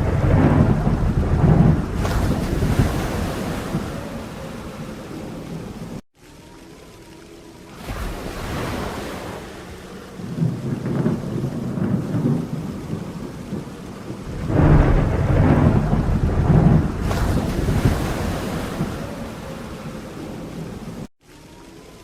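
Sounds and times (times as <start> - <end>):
rolling thunder: 0.0 - 6.0, 10.2 - 21.1
rain falling: 0.0 - 22.0.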